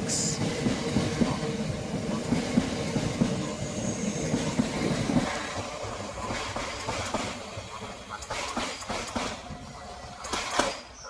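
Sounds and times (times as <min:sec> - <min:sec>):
electric train running past: 0:00.0 - 0:11.0.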